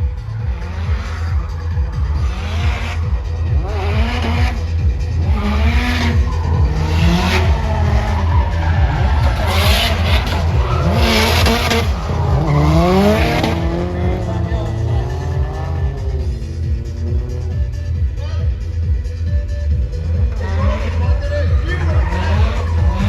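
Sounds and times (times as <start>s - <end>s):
car engines revving: 0.0s - 23.0s
tyre screech: 5.2s - 13.9s, 20.3s - 23.0s.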